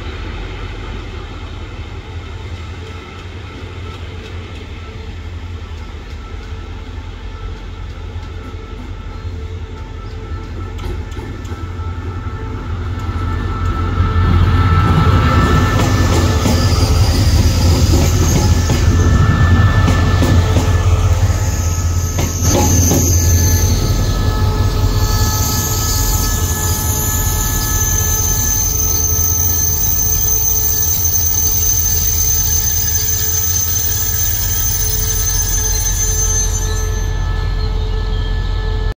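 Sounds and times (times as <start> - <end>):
diesel train engine drone: 0.0 - 38.9
high-pitched wheel squeal: 13.2 - 38.9.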